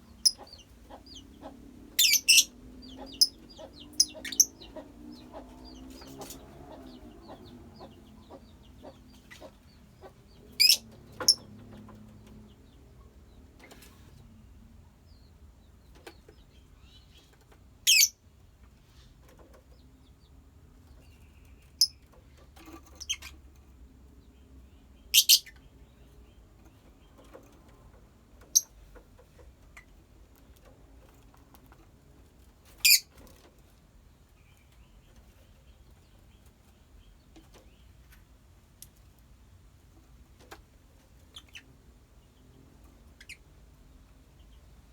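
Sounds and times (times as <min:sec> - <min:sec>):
soft bird chirping: 0:00.0 - 0:39.0, 0:39.9 - 0:44.9.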